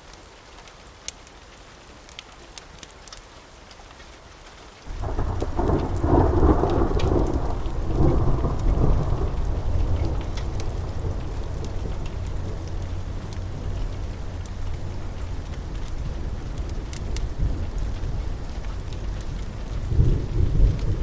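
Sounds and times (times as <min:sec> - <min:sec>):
steady rain: 0:00.0 - 0:21.0
small sharp crackles: 0:00.2 - 0:21.0
thunder rumbling: 0:04.9 - 0:21.0.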